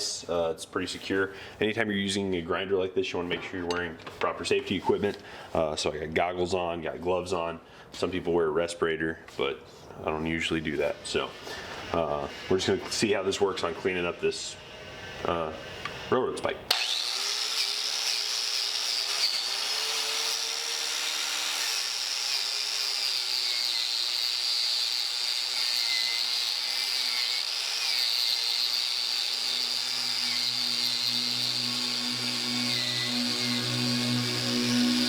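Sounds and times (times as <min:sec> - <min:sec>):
angle grinder grinding steel: 0:10.7 - 0:35.0.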